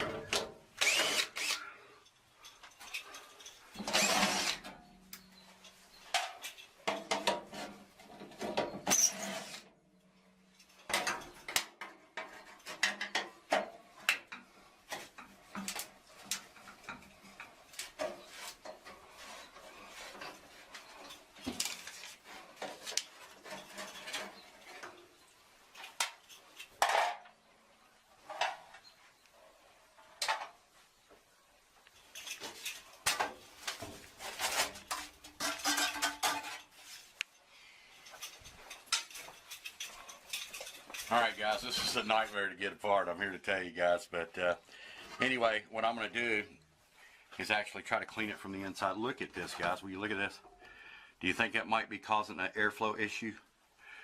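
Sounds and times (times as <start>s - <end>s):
metal tools clinking: 0.9s - 9.5s, 31.8s - 37.4s, 38.0s - 42.5s.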